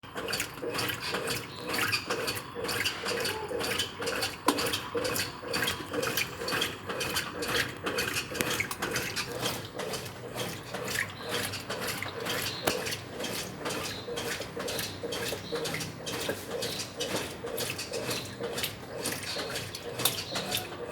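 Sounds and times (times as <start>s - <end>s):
washing machine water sloshing: 0.0s - 20.9s.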